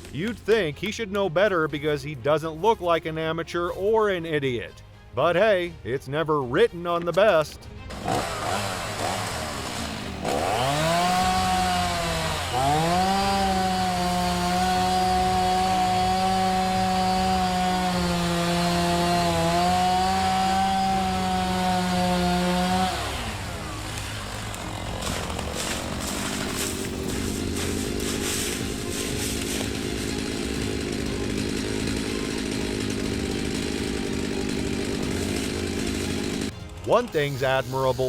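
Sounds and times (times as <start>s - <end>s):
chainsaw idling and revving: 7.8s - 37.4s.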